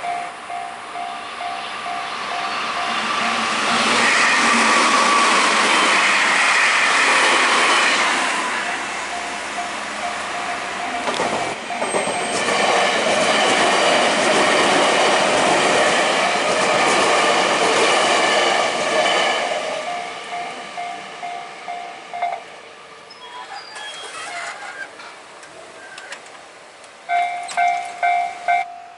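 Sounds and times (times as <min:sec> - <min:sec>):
electric train passing: 0:00.0 - 0:28.9
wheels clattering over rail joints: 0:10.9 - 0:17.2.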